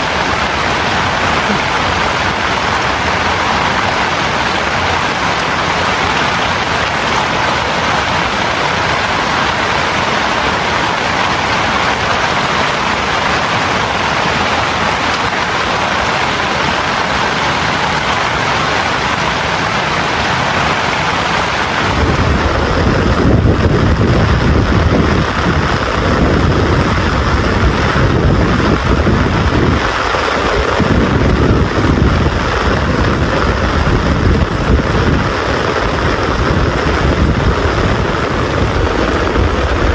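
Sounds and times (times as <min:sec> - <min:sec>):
heavy rain hissing: 0:00.0 - 0:39.9
deep uneven rumble: 0:16.6 - 0:39.9.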